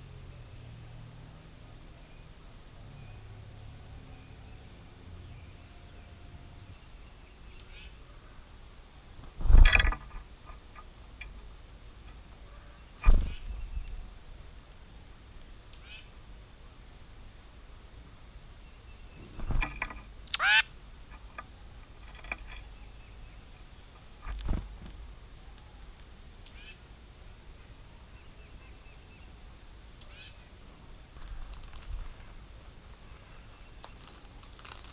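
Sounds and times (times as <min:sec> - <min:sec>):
birds calling: 0:12.1 - 0:14.1, 0:18.0 - 0:24.6.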